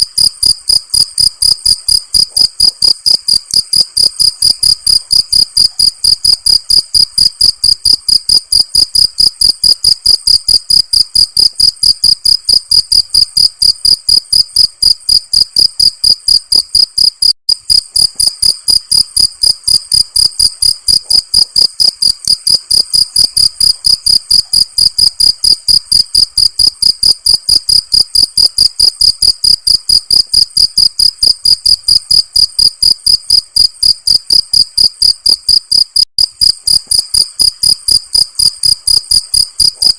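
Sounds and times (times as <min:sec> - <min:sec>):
crickets chirping: 0:00.1 - 0:39.9.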